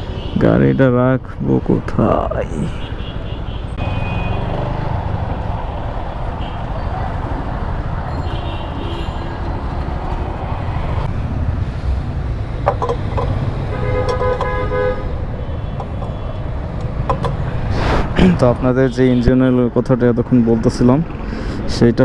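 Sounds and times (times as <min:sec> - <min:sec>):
street traffic engines rumbling: 0:00.0 - 0:22.0
vehicle horn honking: 0:02.6 - 0:04.9, 0:08.1 - 0:09.6, 0:13.5 - 0:16.8.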